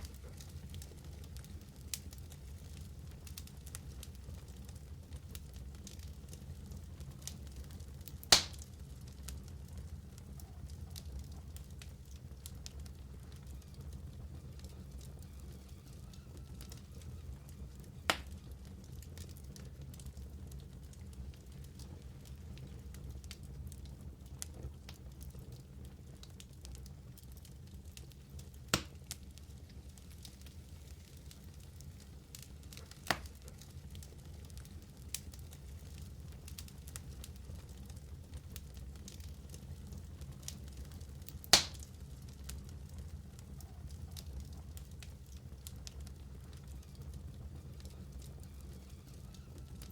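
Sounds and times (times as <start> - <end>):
fire flames rumbling: 0.0 - 49.9
wood fire crackling: 0.0 - 49.9
loud sharp pop: 8.3 - 8.6, 28.7 - 28.9, 41.5 - 41.8.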